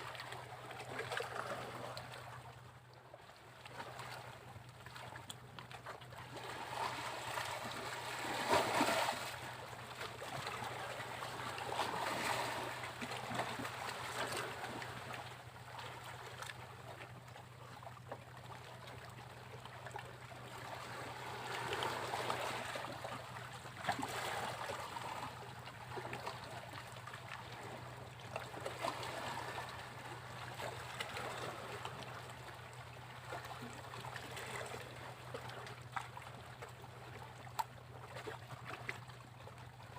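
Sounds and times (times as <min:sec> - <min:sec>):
sea waves breaking on beach: 0:06.4 - 0:09.6.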